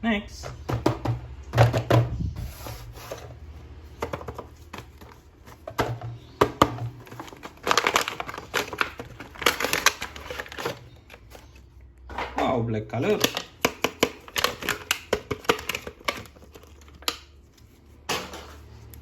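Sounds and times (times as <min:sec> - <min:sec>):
plastic packaging crinkling: 0:06.8 - 0:11.8, 0:13.0 - 0:19.0.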